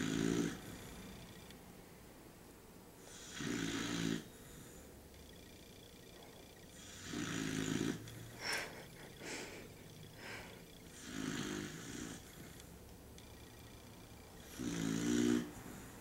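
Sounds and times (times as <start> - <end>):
dog snoring: 0.0 - 1.4, 3.0 - 4.9, 6.2 - 12.7, 14.3 - 16.0
dog breathing: 8.2 - 12.5.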